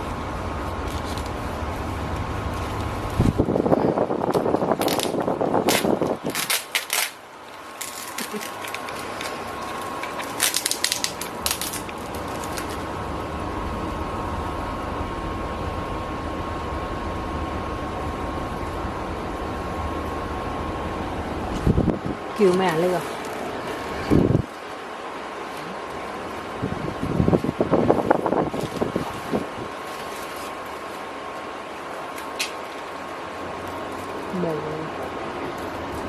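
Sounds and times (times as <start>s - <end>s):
low background hum: 0.0s - 36.0s
plastic packaging crinkling: 0.1s - 13.0s, 22.4s - 34.4s.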